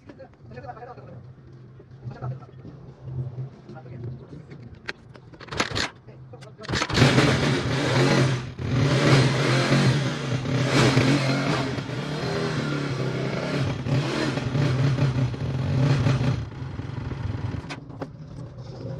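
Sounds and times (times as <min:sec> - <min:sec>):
motorcycle engine running: 0:06.7 - 0:17.8.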